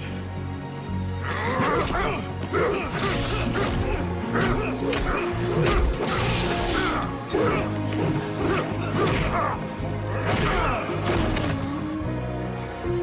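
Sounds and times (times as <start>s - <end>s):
dramatic orchestral music: 0.0s - 13.0s
punch and crash impacts: 10.3s - 11.8s.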